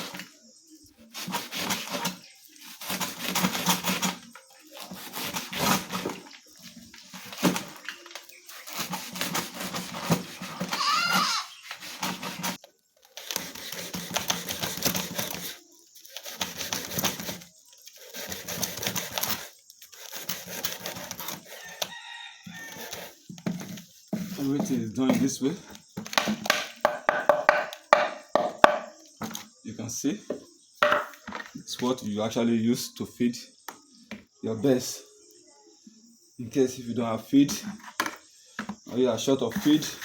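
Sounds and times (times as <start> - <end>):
plants being cut by hand: 1.0 - 21.9
bird call: 10.6 - 11.7.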